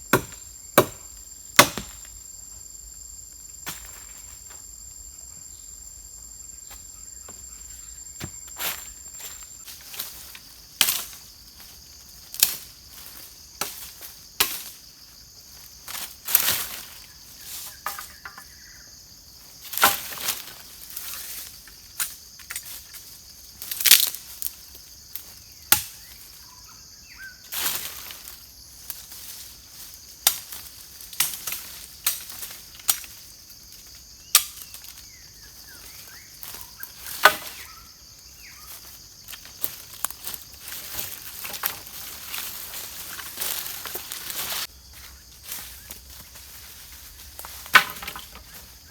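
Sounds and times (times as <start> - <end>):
forest insects droning: 0.0 - 48.9
wood being chopped and snapped: 0.1 - 2.1, 19.8 - 20.4, 25.7 - 26.0, 31.2 - 33.1, 34.3 - 34.9, 37.1 - 37.6, 47.7 - 48.5
rustle of leaves: 8.4 - 18.4, 19.2 - 26.4, 27.2 - 48.9.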